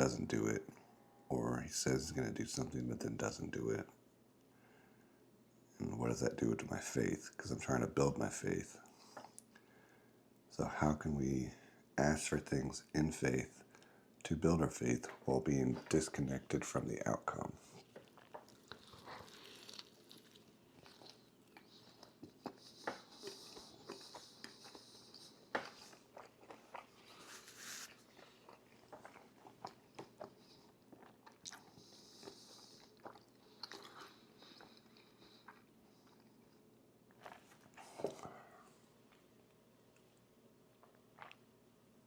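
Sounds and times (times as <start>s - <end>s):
person crunching and chewing food: 17.6s - 38.0s, 40.7s - 41.4s.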